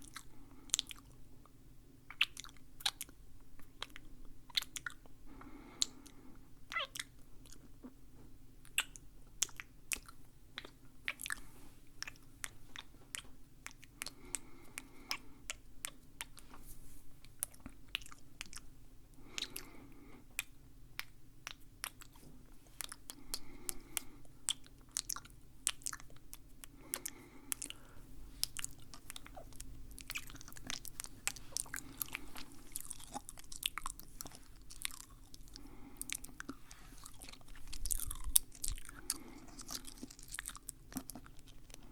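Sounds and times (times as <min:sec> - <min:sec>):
wet mouth clicks: 0:00.0 - 0:01.2, 0:02.1 - 0:05.1, 0:08.6 - 0:16.4, 0:17.2 - 0:27.8, 0:28.4 - 0:41.9
crunchy chewing: 0:17.2 - 0:41.9.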